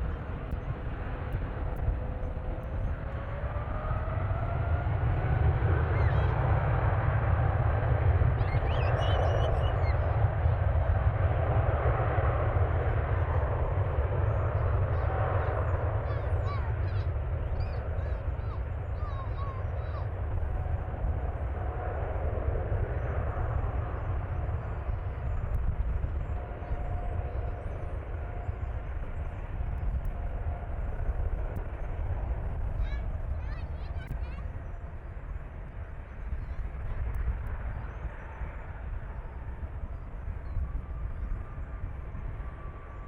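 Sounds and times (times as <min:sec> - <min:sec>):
jet airliner engines: 0:00.0 - 0:43.0.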